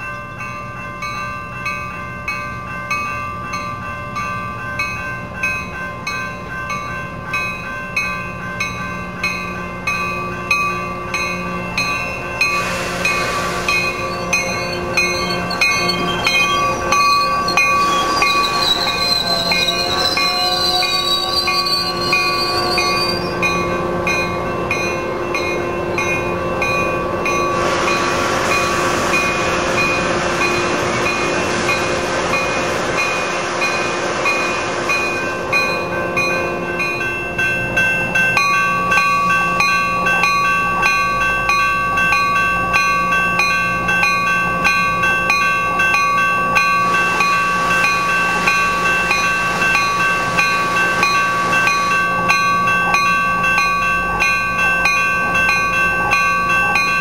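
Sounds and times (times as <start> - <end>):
commuter train running: 0.0 - 57.0
crossing bell ringing: 0.0 - 57.0
high wavering wheel squeal: 11.4 - 24.1
strong rushing hiss: 11.8 - 18.4, 27.2 - 37.8, 46.4 - 52.7.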